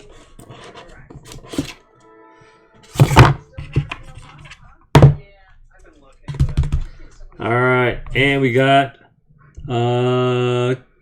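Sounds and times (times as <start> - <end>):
cardboard rustling: 0.0 - 1.8, 2.8 - 5.1.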